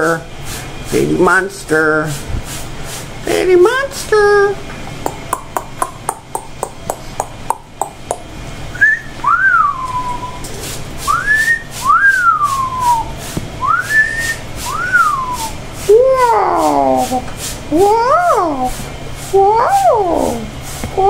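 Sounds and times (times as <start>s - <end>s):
rapid sharp clicks: 5.1s - 8.3s
parrot wolf whistles: 8.8s - 10.4s, 11.1s - 15.6s.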